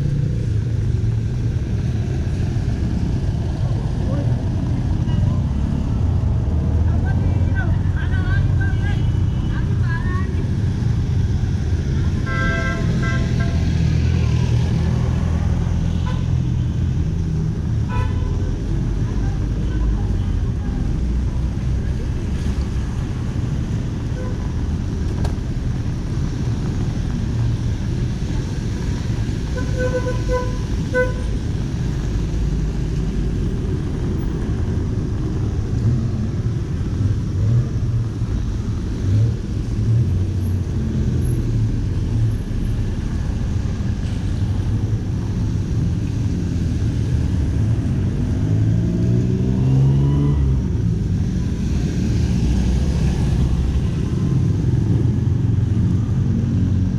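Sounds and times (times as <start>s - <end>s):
city street traffic: 0.0s - 56.9s
vehicle horn toots: 29.6s - 31.3s
vehicle engine accelerating: 31.4s - 56.9s.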